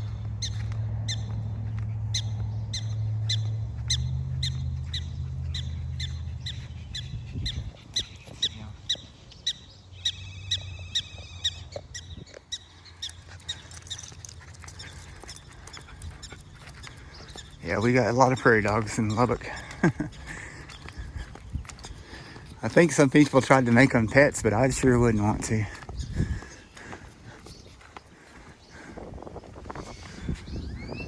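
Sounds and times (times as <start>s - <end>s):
prairie dogs alarm barks: 2.1s - 27.4s.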